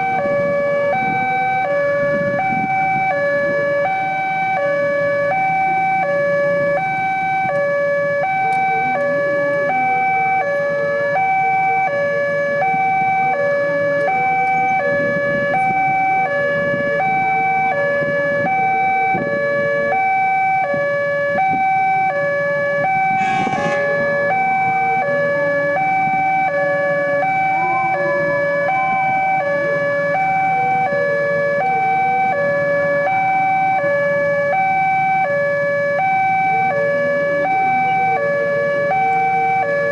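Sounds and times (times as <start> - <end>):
level crossing two-tone alarm: 0.0 - 39.9
low traffic noise: 21.4 - 39.8.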